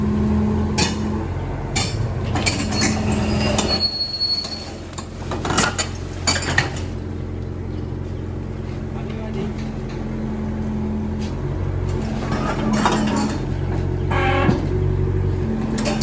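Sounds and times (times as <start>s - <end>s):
excavator engine running: 0.0s - 16.0s
metal clanks and clinks: 1.8s - 7.0s, 11.9s - 13.8s
high squeal: 2.4s - 4.8s.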